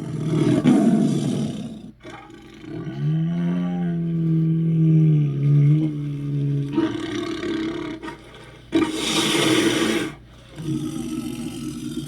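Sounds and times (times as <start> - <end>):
harsh hissing roar: 8.8 - 12.0.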